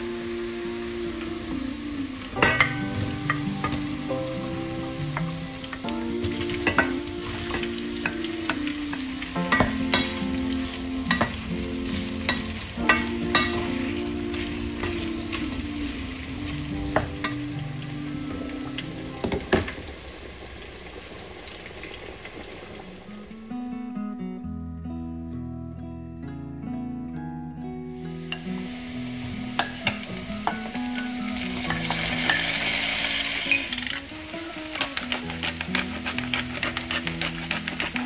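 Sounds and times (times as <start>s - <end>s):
meat sizzling in a pot: 0.0s - 23.5s, 28.0s - 38.0s
wooden spatula scraping pot: 34.7s - 38.0s.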